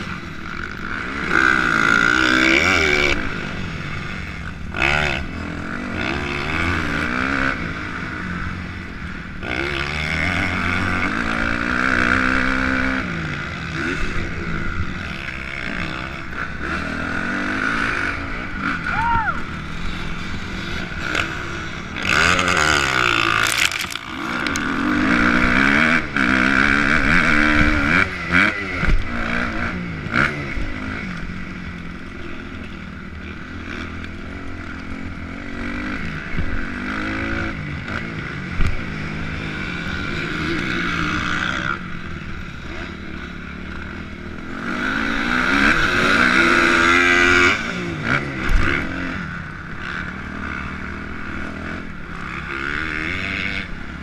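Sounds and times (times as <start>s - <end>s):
dirt bike engine revving: 9.4s - 31.0s.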